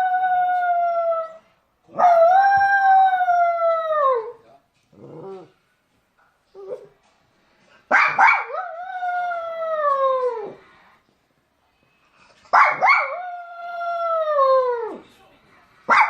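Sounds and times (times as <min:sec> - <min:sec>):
dog yipping and howling: 0:00.0 - 0:04.4, 0:12.6 - 0:15.0.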